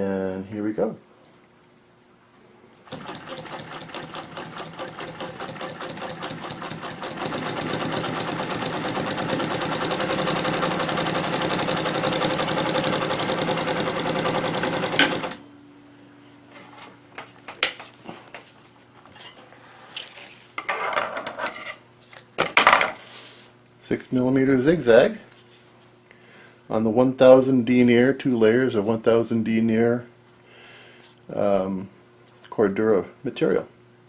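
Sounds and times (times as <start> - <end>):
sewing machine stitching: 2.9 - 15.4.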